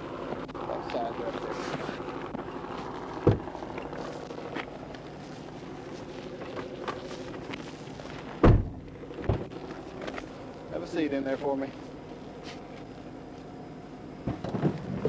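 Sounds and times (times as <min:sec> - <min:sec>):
car engine idling: 0:00.0 - 0:15.0
loud thump: 0:03.2 - 0:03.5, 0:08.4 - 0:09.5.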